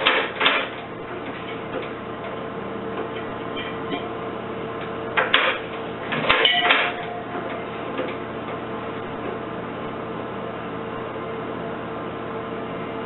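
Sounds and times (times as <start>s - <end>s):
steady hum: 0.0s - 13.0s
metal clattering and clicking: 5.2s - 7.1s.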